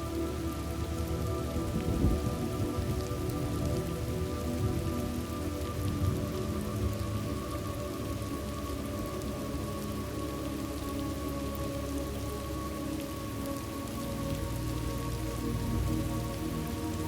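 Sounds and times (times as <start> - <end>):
soft music pad: 0.0 - 17.0
steady rain: 0.0 - 17.0.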